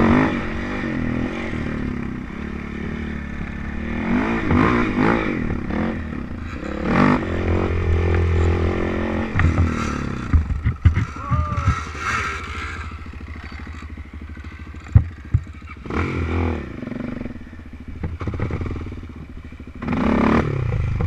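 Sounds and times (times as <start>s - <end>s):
off-road engine revving: 0.0s - 21.0s
knocks and clatter over rough ground: 6.4s - 16.0s, 17.9s - 20.0s, 20.6s - 21.0s.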